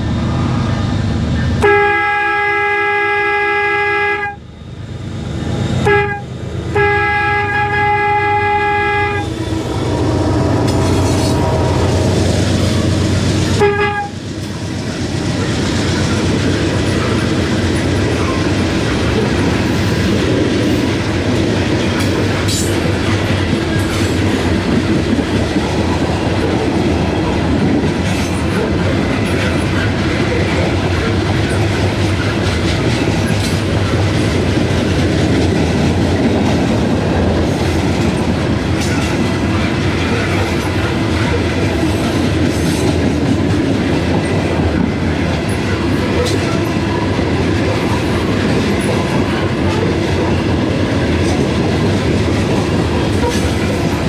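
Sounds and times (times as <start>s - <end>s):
freight train rumbling past: 0.0s - 54.0s
train air horn blasts: 1.6s - 4.5s, 5.8s - 14.3s
wheels clacking over rail joints: 9.2s - 54.0s.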